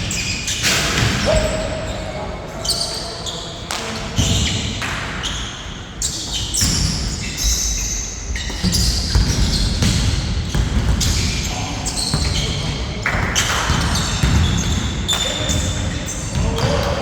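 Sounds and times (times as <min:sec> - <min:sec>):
basketball bouncing on court: 0:08.4 - 0:17.0.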